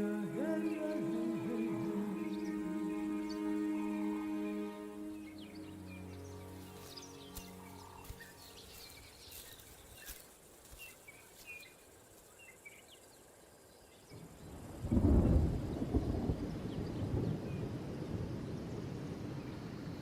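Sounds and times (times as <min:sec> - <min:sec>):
bush ambience: 0:00.0 - 0:20.0
low rumble of thunder: 0:14.1 - 0:20.0.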